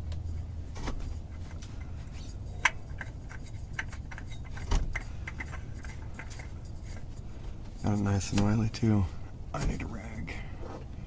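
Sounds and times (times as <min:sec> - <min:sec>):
low steady hum: 0:00.0 - 0:11.0
oil filter clicks and knocks: 0:02.6 - 0:07.1.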